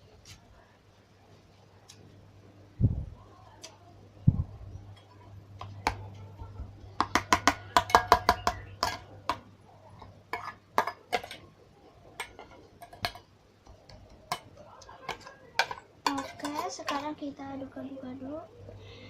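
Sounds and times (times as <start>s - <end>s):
spoon clinking against a bowl: 7.0s - 9.4s, 13.9s - 17.1s.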